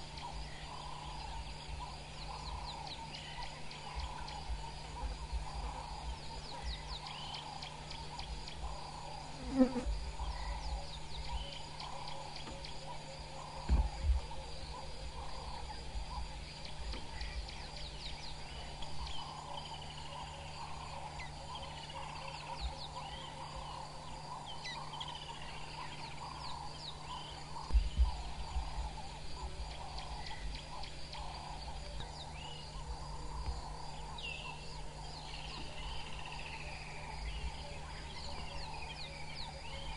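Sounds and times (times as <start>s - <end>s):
birds chirping and calling: 0.0s - 39.9s
insect drone: 0.0s - 39.9s
low thumps: 13.6s - 14.4s.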